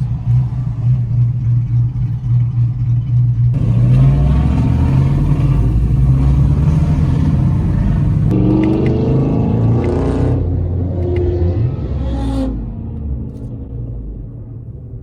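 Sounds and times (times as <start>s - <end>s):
car engine running: 0.0s - 8.5s.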